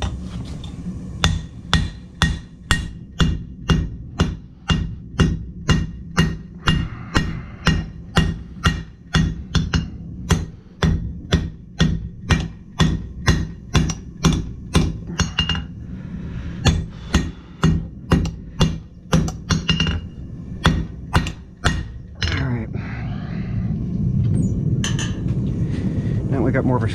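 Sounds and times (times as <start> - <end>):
hammer striking steel on anvil: 1.2 - 15.8, 16.6 - 22.6.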